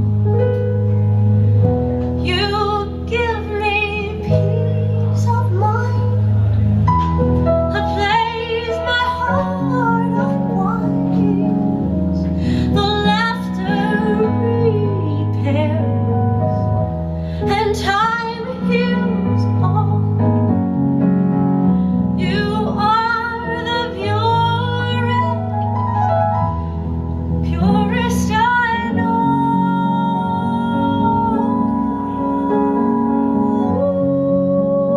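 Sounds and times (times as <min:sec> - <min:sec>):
woman singing: 0:02.2 - 0:06.3, 0:07.7 - 0:11.6, 0:12.5 - 0:16.1, 0:17.4 - 0:20.4, 0:22.2 - 0:25.5, 0:27.4 - 0:34.9.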